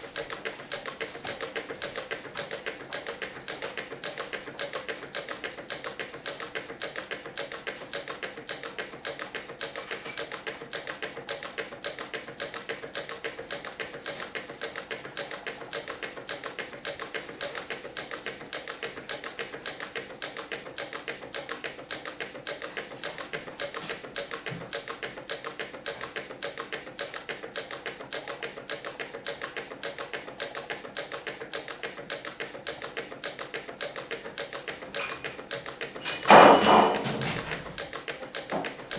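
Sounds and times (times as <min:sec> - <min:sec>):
engine gears clattering: 0:36.0 - 0:37.9.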